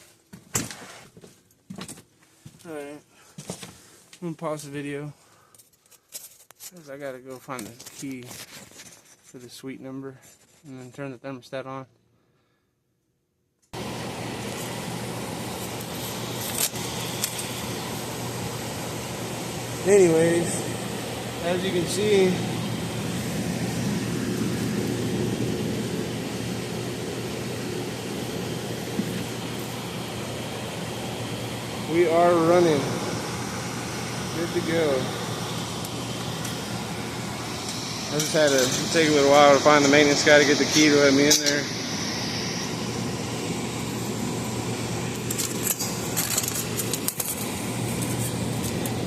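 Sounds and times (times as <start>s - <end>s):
blower rushing air: 13.8s - 49.0s
low hum: 13.8s - 49.0s.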